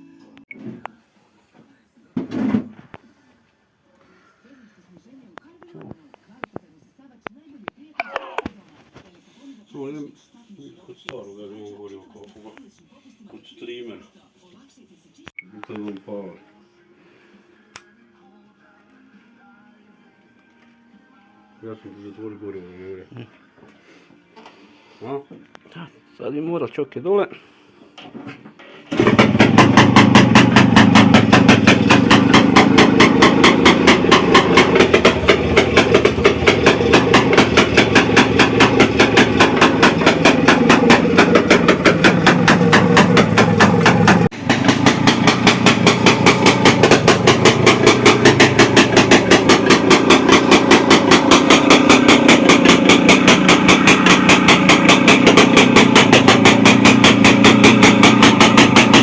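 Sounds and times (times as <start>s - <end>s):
two-stroke engine running: 28.9s - 59.0s.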